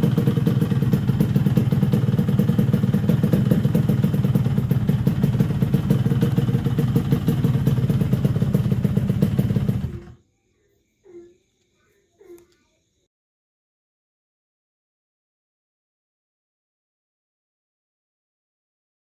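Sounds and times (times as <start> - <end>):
two-stroke motorcycle engine running: 0.0 - 10.2.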